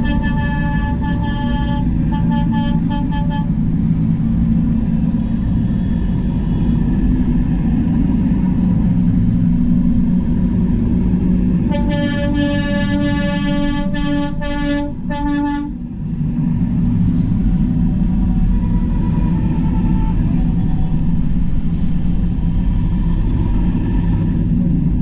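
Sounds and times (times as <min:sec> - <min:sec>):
vehicle horn tooting: 0:00.0 - 0:03.6, 0:11.7 - 0:15.8, 0:19.5 - 0:20.4
tractor engines rumbling: 0:00.0 - 0:25.0.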